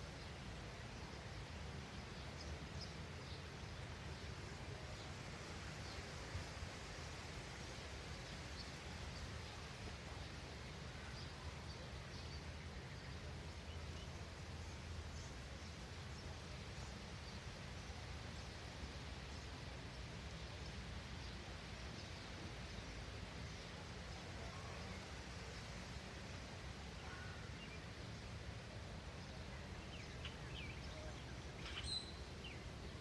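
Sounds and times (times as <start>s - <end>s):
faint high bird chirps: 30.0s - 32.7s.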